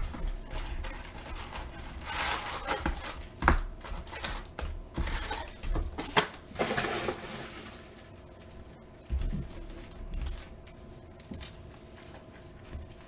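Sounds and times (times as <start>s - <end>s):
packaging crinkling and rustling: 0.0s - 8.3s.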